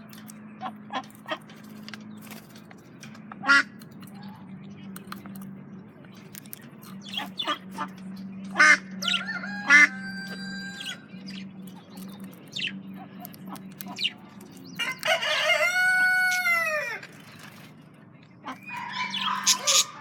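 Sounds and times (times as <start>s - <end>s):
budgerigars chirping: 6.2s - 16.8s, 18.4s - 20.0s.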